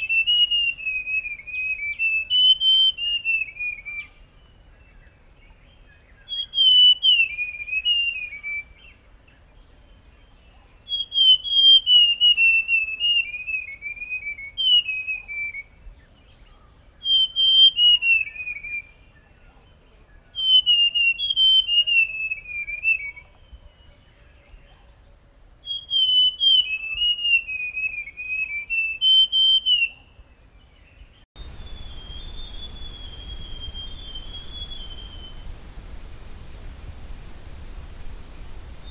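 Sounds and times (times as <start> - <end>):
bird singing whistled notes: 0.0 - 24.8, 25.6 - 38.9
high insect trill: 31.4 - 38.9.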